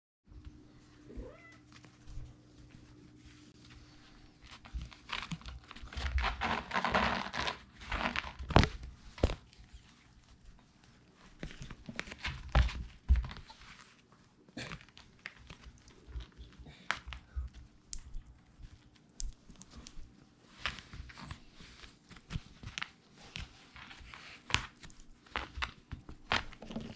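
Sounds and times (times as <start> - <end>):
cats playing with string toy: 1.8 - 26.9.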